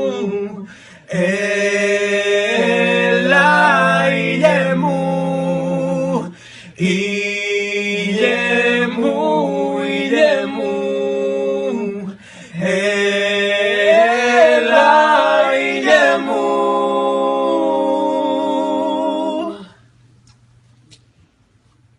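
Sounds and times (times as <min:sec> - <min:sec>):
voices singing a cappella: 0:00.0 - 0:19.9.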